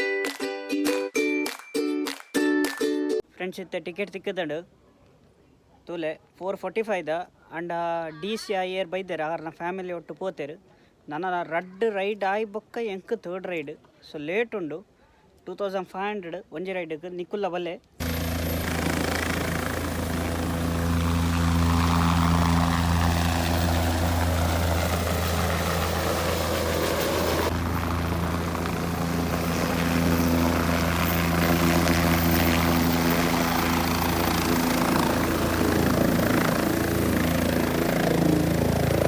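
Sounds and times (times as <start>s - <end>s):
helicopter rotor and engine drone: 18.0s - 39.0s.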